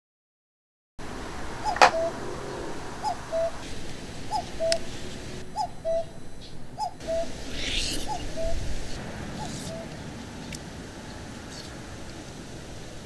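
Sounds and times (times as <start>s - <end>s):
bird two-note call: 1.6s - 2.2s.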